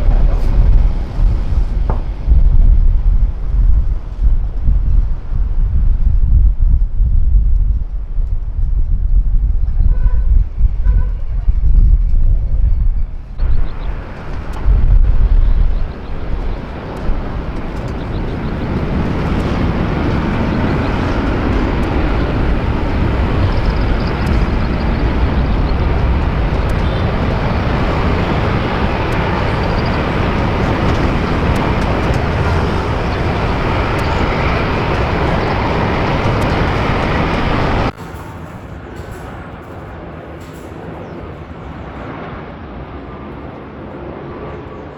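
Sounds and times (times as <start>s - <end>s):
jet engine roaring: 0.0s - 4.4s, 13.4s - 38.0s.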